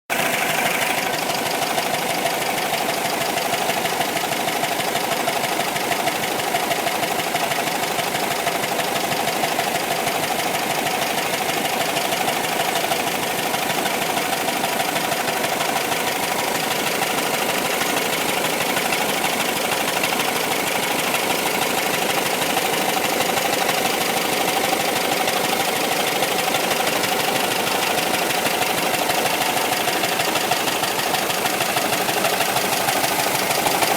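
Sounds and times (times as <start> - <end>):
van engine running steadily: 0.1 - 33.9.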